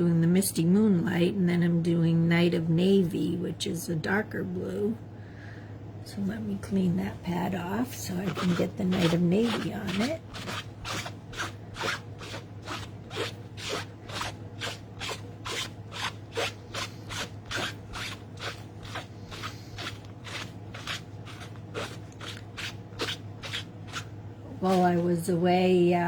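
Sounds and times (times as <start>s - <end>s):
rubbing stamp on cleaning pad: 8.1s - 25.1s
small squeaks: 8.3s - 24.1s.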